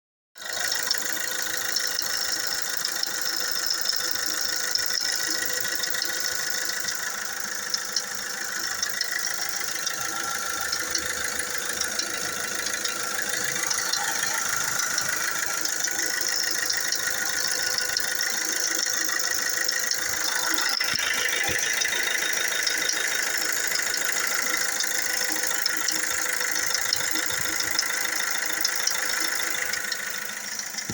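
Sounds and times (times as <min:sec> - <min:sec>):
diesel engine idling with rattle: 0:00.4 - 0:30.9.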